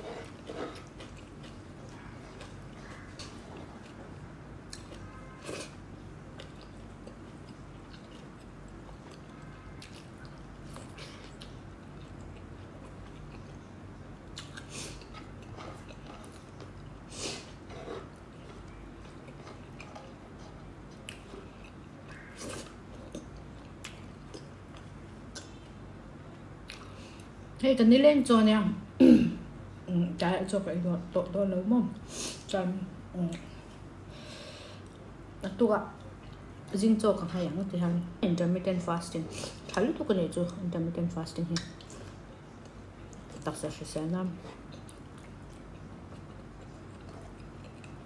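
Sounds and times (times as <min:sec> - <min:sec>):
steady low hum: 0:00.0 - 0:48.0
person chewing with wet smacks: 0:00.1 - 0:27.4, 0:41.4 - 0:43.5, 0:44.3 - 0:48.0.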